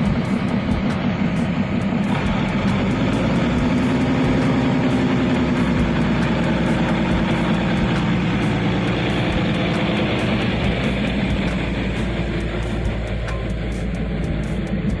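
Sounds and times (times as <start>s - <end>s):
train engine hum: 0.0s - 15.0s
train running rumble: 0.0s - 15.0s.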